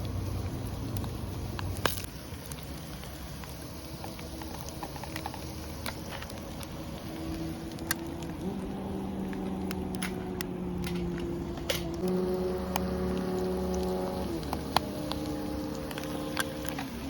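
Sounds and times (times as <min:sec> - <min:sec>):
sharp pops and crackles: 0:00.0 - 0:17.0
hum of held tones: 0:07.0 - 0:17.0.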